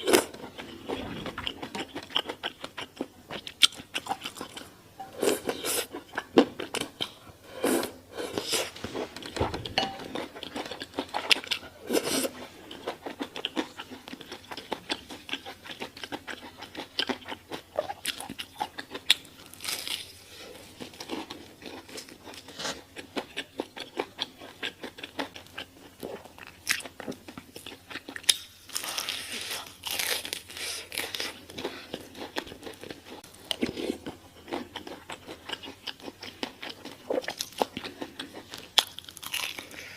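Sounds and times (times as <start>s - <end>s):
crunchy chewing of fried chicken: 0.0s - 39.9s.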